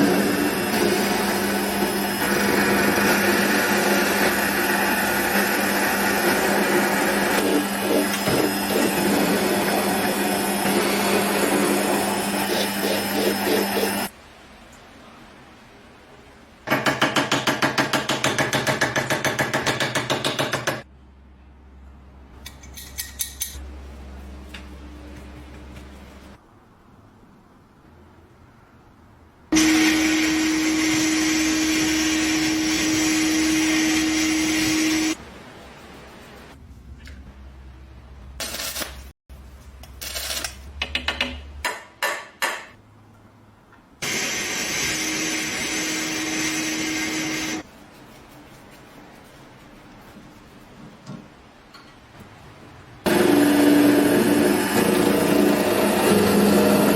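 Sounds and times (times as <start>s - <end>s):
power tool noise: 0.0s - 14.1s, 29.5s - 35.2s, 44.0s - 47.6s, 53.0s - 56.9s
metal lock parts clinking: 22.4s - 23.6s.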